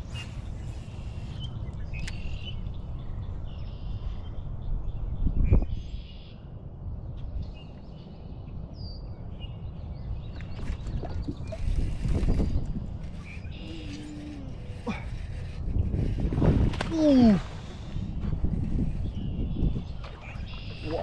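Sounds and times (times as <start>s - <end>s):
birds chirping: 7.2s - 16.2s, 17.0s - 21.0s.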